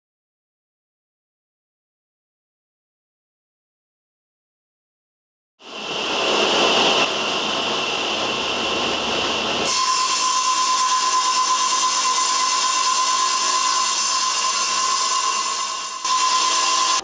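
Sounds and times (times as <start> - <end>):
cnc machine hiss and whine: 9.6 - 17.0.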